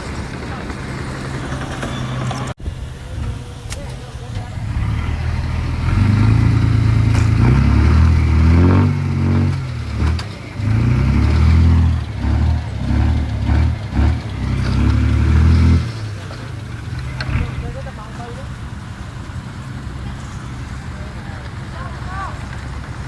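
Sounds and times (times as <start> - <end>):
diesel engine revving under load: 0.0 - 23.0.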